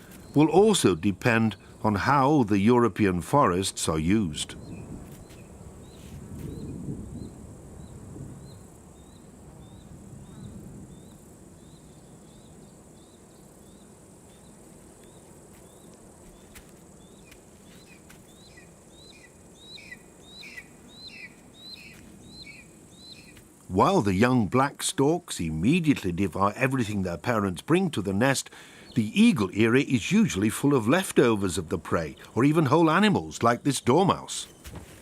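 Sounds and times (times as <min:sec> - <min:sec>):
bird chirping high rising notes: 0:17.8 - 0:23.4.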